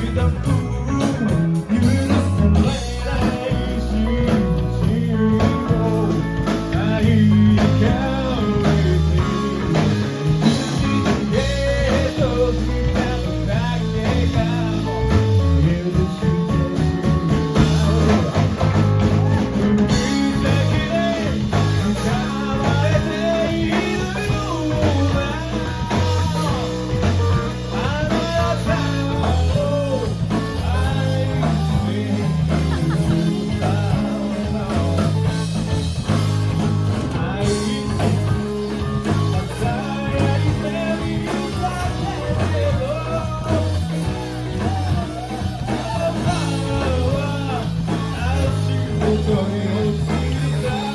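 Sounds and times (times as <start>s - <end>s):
person singing: 0.0s - 36.3s, 36.9s - 50.9s
bass line: 0.0s - 50.9s
electric guitar: 0.0s - 50.9s.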